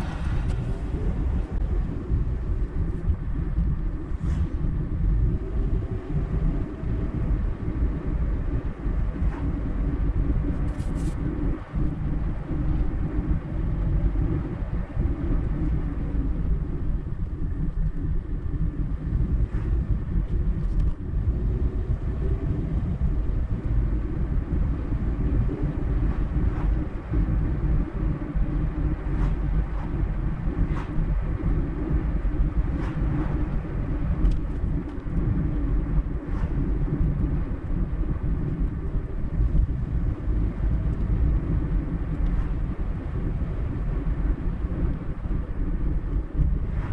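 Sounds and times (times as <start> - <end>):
car tyres and engine rumble: 0.0 - 46.9.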